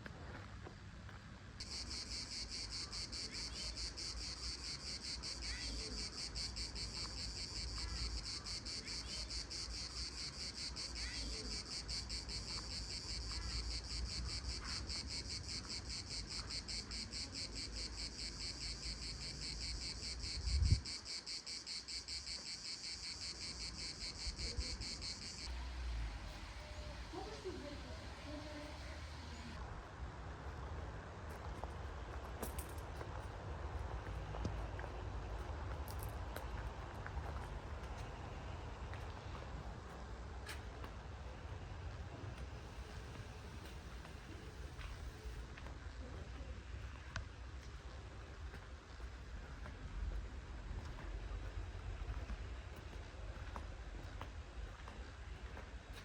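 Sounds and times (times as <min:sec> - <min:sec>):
cicadas buzzing: 0:01.6 - 0:29.6.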